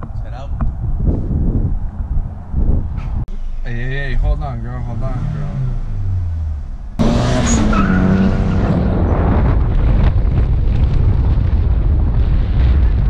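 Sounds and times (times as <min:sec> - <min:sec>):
car driving hard: 0:03.0 - 0:11.4
car engine revving: 0:03.3 - 0:10.0.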